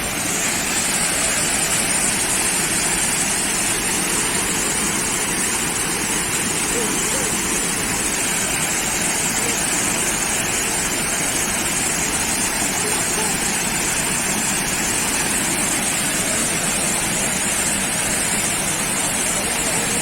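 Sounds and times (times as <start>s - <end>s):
water rushing: 0.0s - 20.0s
murmur of voices: 6.3s - 20.0s.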